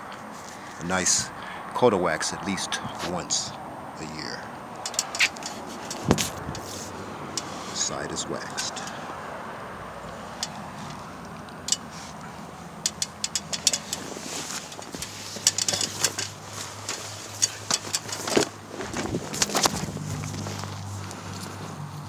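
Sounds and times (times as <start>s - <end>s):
outdoor background noise: 0.0s - 22.0s
footsteps crunching on gravel: 13.9s - 21.8s.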